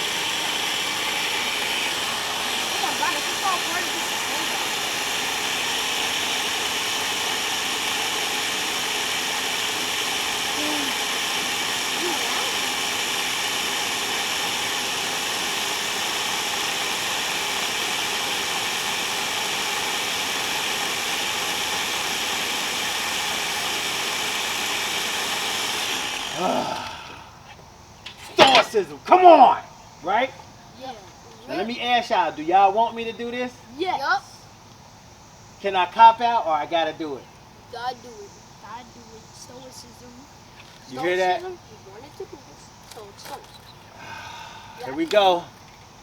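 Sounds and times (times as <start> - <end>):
blender motor running: 0.0 - 28.8, 40.4 - 46.0.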